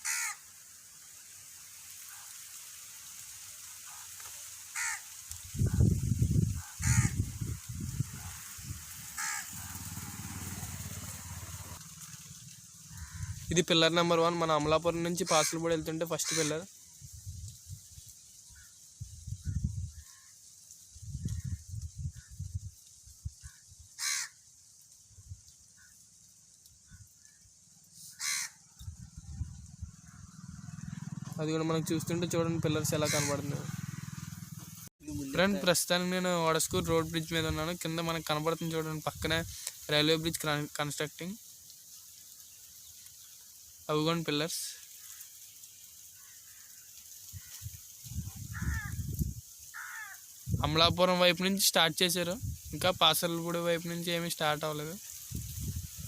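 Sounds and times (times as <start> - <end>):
bird harsh calls: 0.0 - 0.4, 4.7 - 5.1, 5.7 - 13.5, 16.2 - 16.7, 23.5 - 24.4, 28.0 - 31.4, 32.8 - 34.9, 48.5 - 49.1, 49.7 - 50.3
crows cawing: 0.0 - 0.5, 3.7 - 5.9, 6.5 - 7.5, 8.1 - 13.6, 15.2 - 16.7, 19.9 - 20.5, 23.4 - 24.5, 28.0 - 28.8, 29.9 - 31.4, 32.8 - 34.7, 44.8 - 50.4
low rumbling: 5.5 - 13.6, 28.8 - 34.9.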